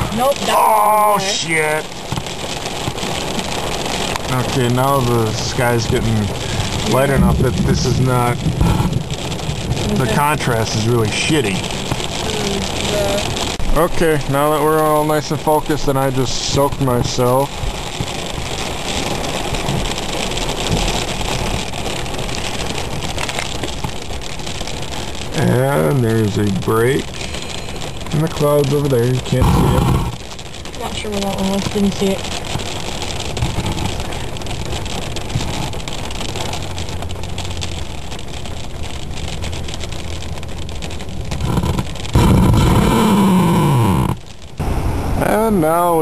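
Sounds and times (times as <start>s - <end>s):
rain and wind on a car: 0.0s - 46.0s
low rumble: 3.2s - 45.7s
fine crackles: 14.2s - 44.8s
loud sudden noise: 41.4s - 45.6s.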